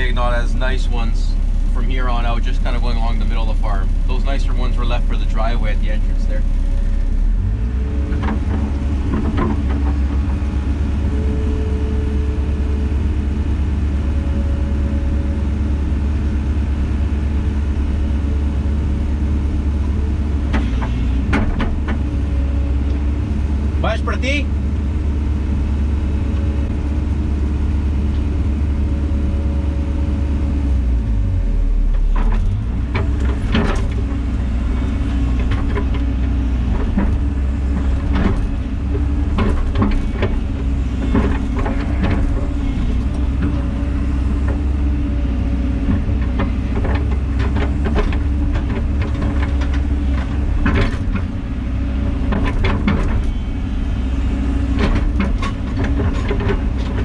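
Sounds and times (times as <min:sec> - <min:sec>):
diesel engine running: 0:00.0 - 0:57.0
sharp knocks and clanks: 0:08.1 - 0:10.6, 0:20.5 - 0:22.1, 0:32.0 - 0:34.2, 0:34.8 - 0:43.8, 0:45.8 - 0:51.3, 0:52.2 - 0:53.4, 0:54.7 - 0:57.0.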